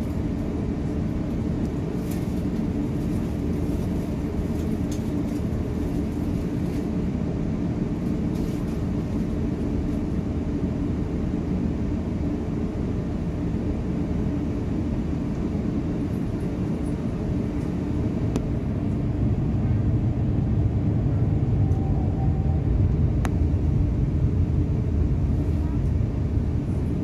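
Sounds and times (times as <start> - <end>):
aircraft engine and airflow rumble: 0.0 - 27.0
faint clicks in cabin: 17.6 - 18.5, 23.2 - 23.4.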